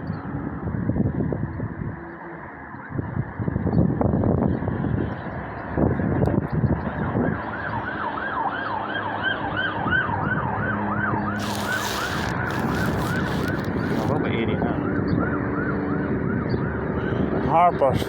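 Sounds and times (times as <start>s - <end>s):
loud hiss: 11.4s - 14.2s.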